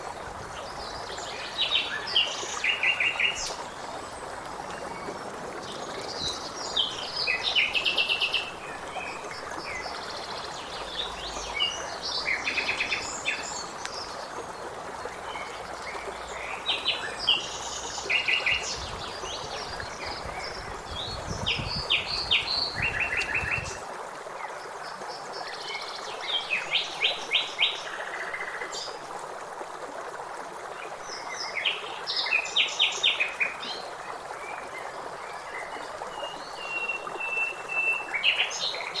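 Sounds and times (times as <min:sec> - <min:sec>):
songbirds singing with trills: 0:00.6 - 0:23.8.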